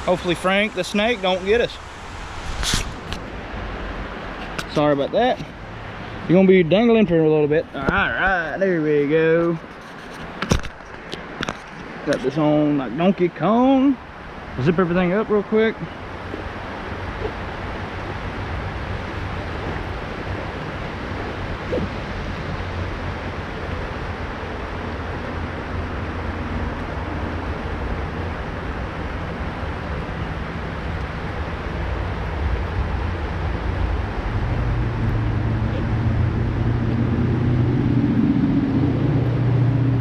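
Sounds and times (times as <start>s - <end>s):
mountain river rushing: 0.0s - 6.3s, 14.0s - 36.7s
low steady hum: 12.6s - 40.0s.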